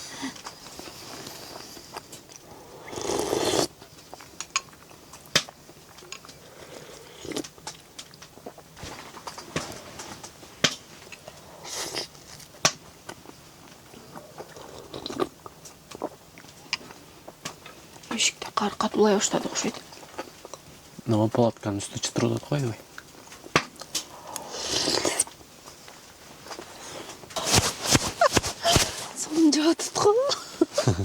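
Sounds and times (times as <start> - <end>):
person eating crunchy food: 0.4 - 9.8, 11.0 - 17.8, 23.0 - 25.8, 26.4 - 29.2
short rustles: 26.2 - 30.1.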